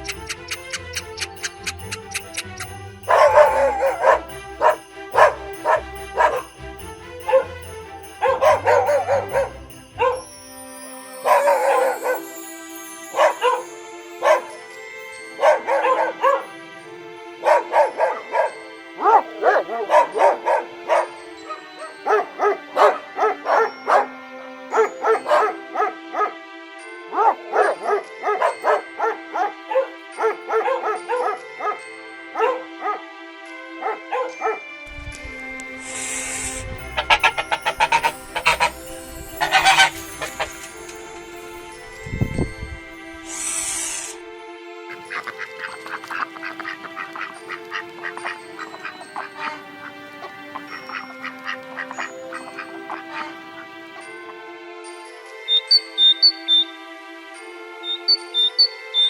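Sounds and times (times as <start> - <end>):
dog barking and yipping: 0.0 - 6.5, 7.2 - 7.6, 8.2 - 10.3, 11.2 - 12.3, 13.1 - 14.6, 15.3 - 16.6, 17.4 - 26.4, 27.1 - 31.8, 32.4 - 33.0, 33.8 - 34.6, 36.4 - 41.0
background music with held notes: 0.0 - 59.0.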